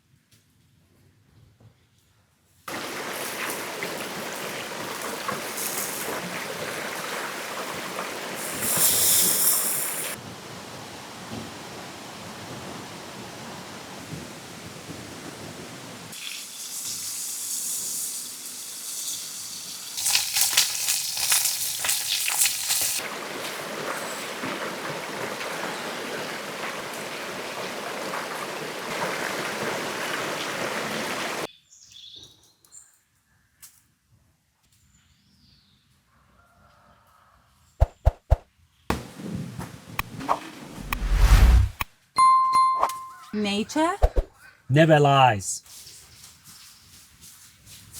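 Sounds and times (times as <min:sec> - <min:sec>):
steak sizzling over fire: 0:02.7 - 0:10.2, 0:16.0 - 0:30.2.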